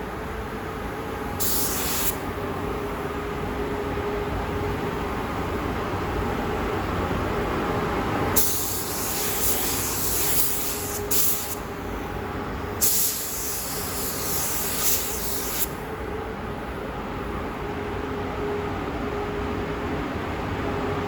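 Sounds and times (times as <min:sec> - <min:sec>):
paint spray gun hissing: 0:01.4 - 0:02.2, 0:08.4 - 0:11.8, 0:12.8 - 0:15.8.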